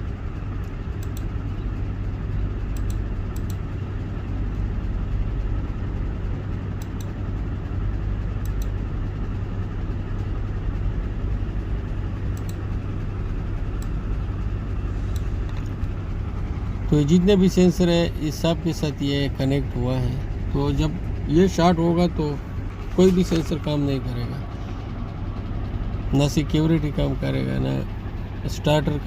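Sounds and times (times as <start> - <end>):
low mechanical drone: 0.0 - 29.0
faint clicks: 0.6 - 1.3, 2.7 - 3.6, 8.4 - 8.8, 12.4 - 12.6.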